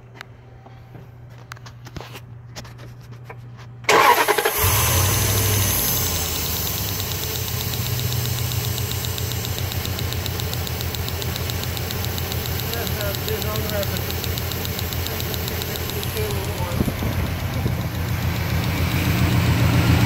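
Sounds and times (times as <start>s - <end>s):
car engine starting and idling: 3.8s - 20.0s
fast regular spark ticking: 4.0s - 19.9s
small handling clicks: 5.4s - 18.8s.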